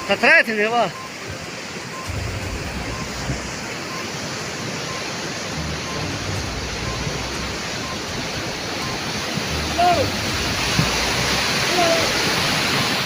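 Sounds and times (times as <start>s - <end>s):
floodwater rushing: 0.0s - 13.0s
low rumble: 2.0s - 3.7s, 5.5s - 11.4s.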